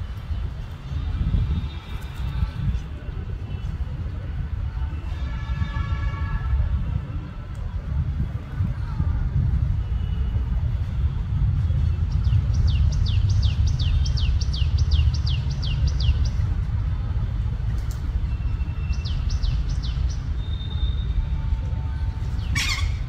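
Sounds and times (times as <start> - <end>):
steady low rumble: 6.5 - 23.0.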